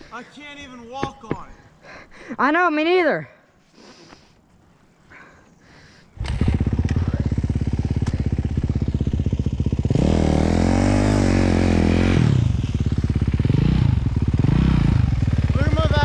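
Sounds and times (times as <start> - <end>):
dirt bike engine idling and revving: 6.2 - 16.0.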